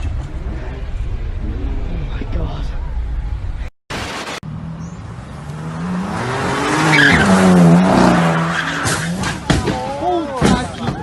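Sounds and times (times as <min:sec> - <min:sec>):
tyres screeching: 0:06.5 - 0:11.0.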